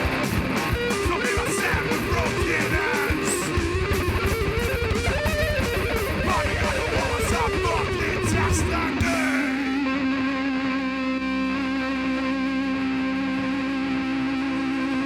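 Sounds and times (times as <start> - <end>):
fast drumming: 0.0 - 9.7
bass guitar: 0.0 - 15.0
distorted electric guitars: 0.0 - 15.0
pitch-bending guitar line: 0.0 - 15.0.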